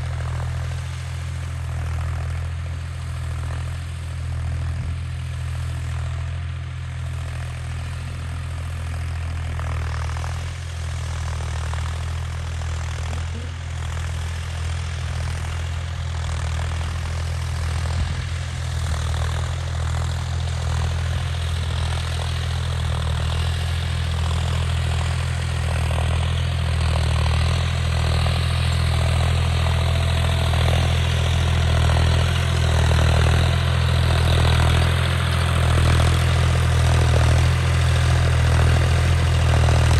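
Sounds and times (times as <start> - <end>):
tractor engine droning: 0.0 - 39.9.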